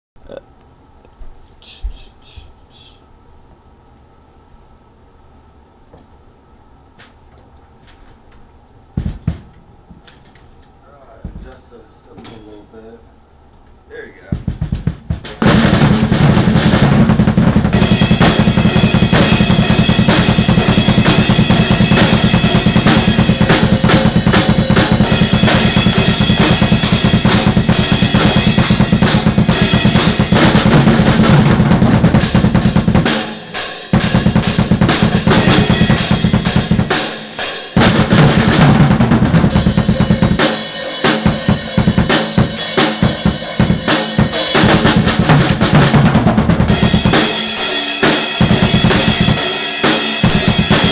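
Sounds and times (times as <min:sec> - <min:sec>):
drum kit played loudly: 0:09.0 - 0:09.5, 0:14.0 - 0:50.9.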